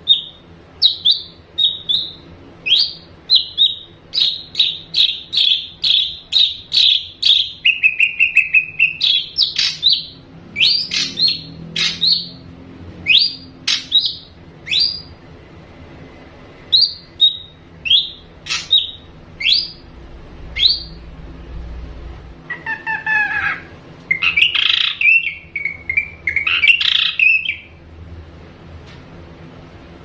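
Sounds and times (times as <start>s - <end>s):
bird singing sharp whistles: 13.1s - 15.1s, 16.7s - 19.8s, 20.6s - 21.0s.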